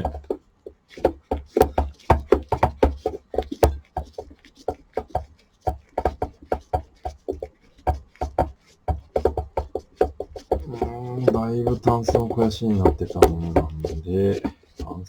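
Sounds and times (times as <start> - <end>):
rice cooker parts knocking and clicking: 0.0 - 0.3.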